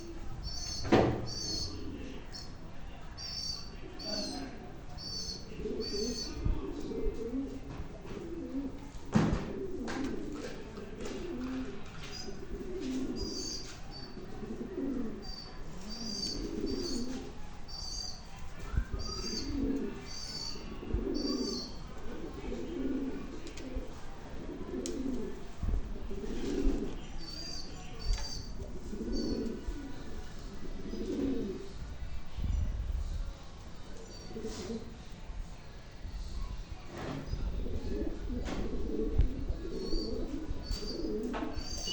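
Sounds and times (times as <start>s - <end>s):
small birds chirping: 0.0s - 7.0s, 12.0s - 14.4s, 15.2s - 21.9s, 26.5s - 30.1s, 39.4s - 41.9s
pigeons cooing: 0.0s - 31.8s, 33.9s - 35.1s, 36.9s - 41.9s.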